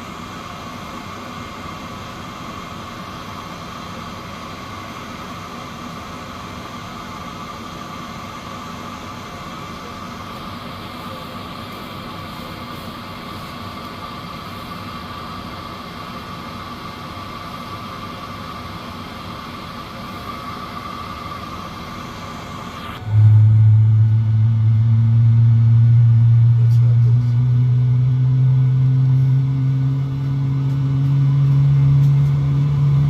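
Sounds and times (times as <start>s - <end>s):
turboprop engine running: 0.0s - 33.0s.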